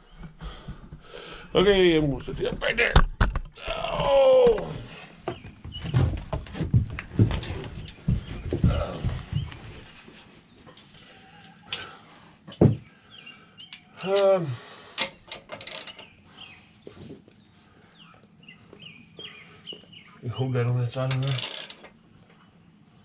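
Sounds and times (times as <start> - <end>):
tools and metal parts clanking: 15.0 - 16.1, 21.0 - 22.0.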